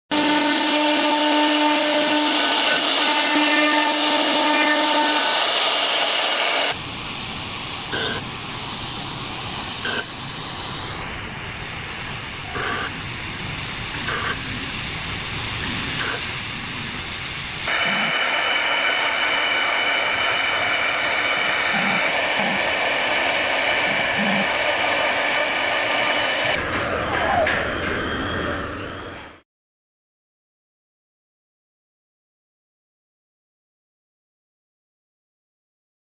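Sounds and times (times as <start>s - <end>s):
cnc router spindle whine: 0.1s - 26.8s.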